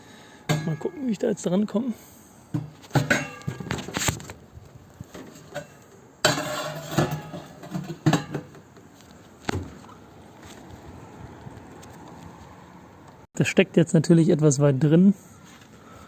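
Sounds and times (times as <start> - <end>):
metal pipes clanking and scraping: 0.4 - 1.2, 1.8 - 4.2, 5.1 - 8.6.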